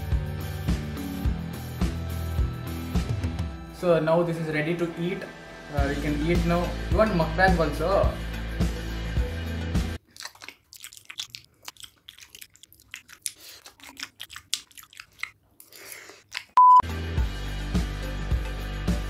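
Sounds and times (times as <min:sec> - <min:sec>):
person chewing noodles: 0:10.0 - 0:16.8
electronic beep: 0:16.6 - 0:16.8.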